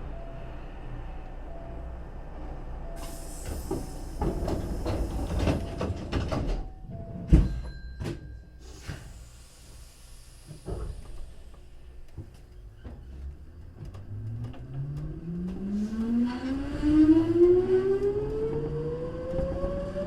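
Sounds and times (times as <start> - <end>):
air hiss: 3.0 - 5.4, 8.6 - 11.5
train doors rattling and knocking: 3.0 - 8.4
train doors shutting thud: 3.0 - 9.2.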